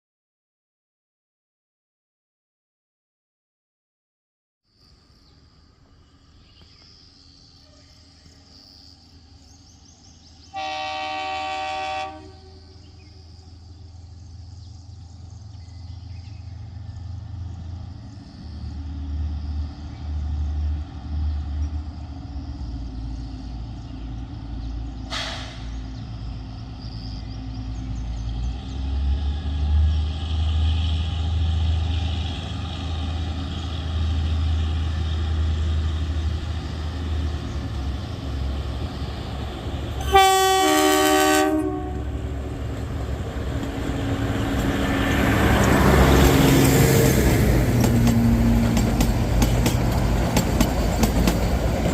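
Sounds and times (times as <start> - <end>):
train engine rumble: 4.9 - 51.9
train horn blast: 10.5 - 13.2, 40.0 - 42.3.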